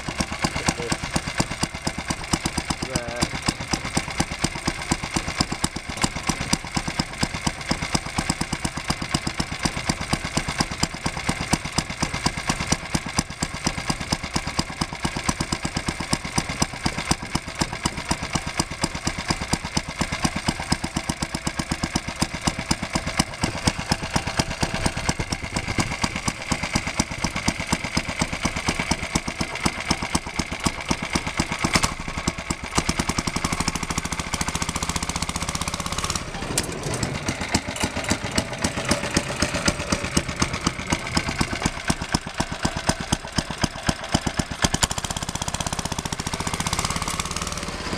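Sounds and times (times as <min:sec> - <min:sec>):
small petrol engine running: 0:00.0 - 0:47.9.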